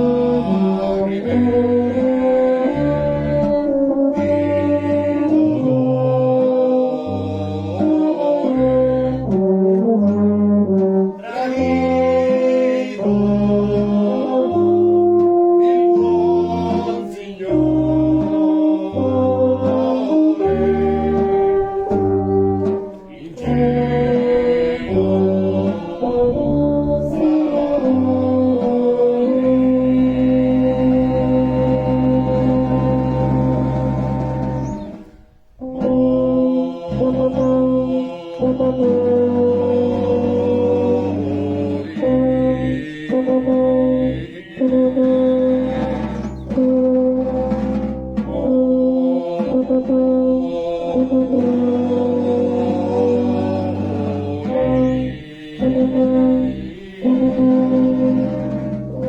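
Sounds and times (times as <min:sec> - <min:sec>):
brass band playing slow chords: 0:00.0 - 0:59.0
low bass line: 0:23.4 - 0:35.0.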